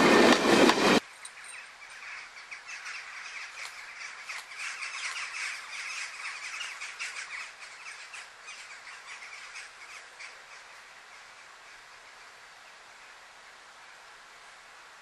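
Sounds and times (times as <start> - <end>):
birds chirping: 1.0 - 12.4.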